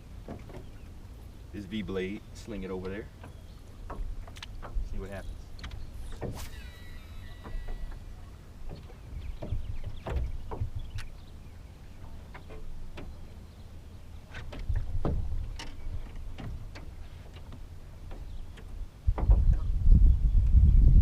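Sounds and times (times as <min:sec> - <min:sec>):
boat low rumble: 0:00.0 - 0:21.0
light ticks and knocks: 0:02.7 - 0:06.3, 0:14.4 - 0:19.6.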